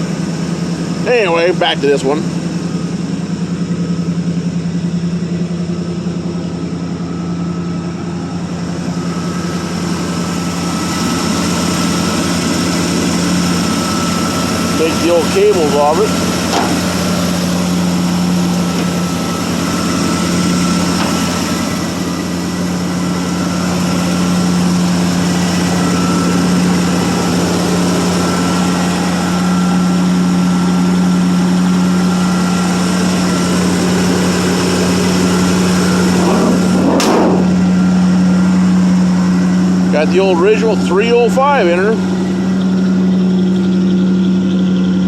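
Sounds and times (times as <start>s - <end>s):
truck engine idling: 0.0s - 45.0s.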